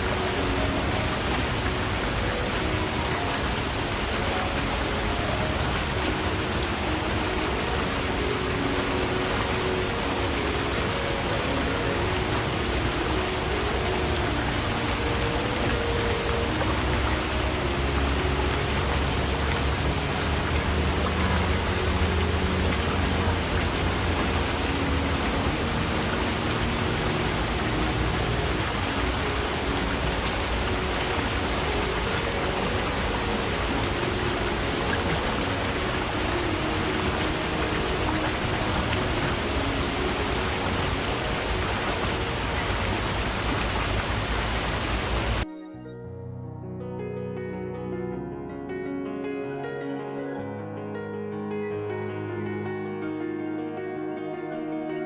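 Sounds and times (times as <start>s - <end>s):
stream water rushing: 0.0s - 45.5s.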